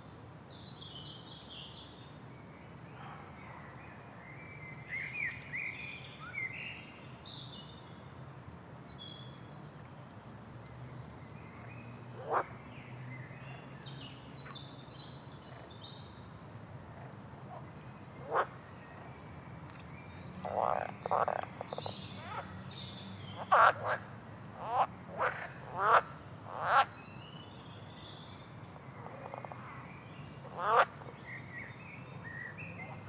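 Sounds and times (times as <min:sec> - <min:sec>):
frog croaks: 0:12.2 - 0:12.5, 0:18.2 - 0:18.6, 0:20.4 - 0:22.4, 0:23.4 - 0:26.9, 0:29.0 - 0:29.7, 0:30.5 - 0:31.1.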